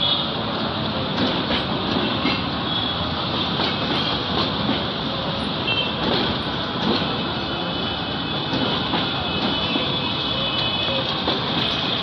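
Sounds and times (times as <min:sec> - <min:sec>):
train wheels rumbling on rail: 0:00.0 - 0:12.0
wheels clacking over joints: 0:10.9 - 0:12.0.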